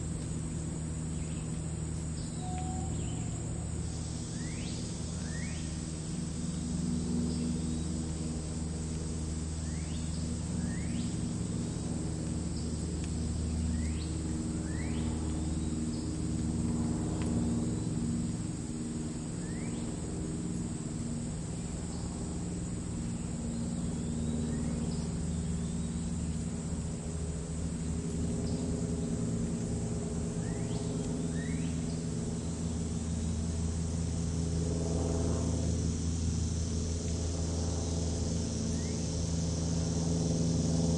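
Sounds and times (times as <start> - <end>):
crickets trilling: 0.0 - 40.9
distant traffic rumble: 0.0 - 40.9
rising bird calls: 2.2 - 5.8.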